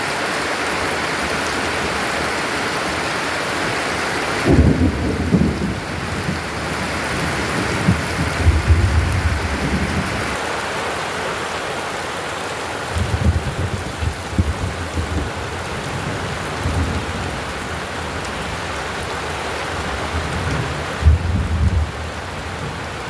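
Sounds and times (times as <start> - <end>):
heavy rain pouring: 0.0 - 23.0
thunder rumbling: 4.2 - 10.4, 12.9 - 23.0.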